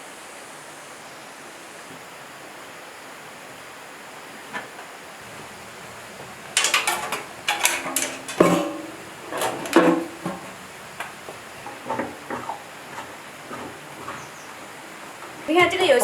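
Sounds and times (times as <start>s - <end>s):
metal tools clanking: 6.2s - 14.3s.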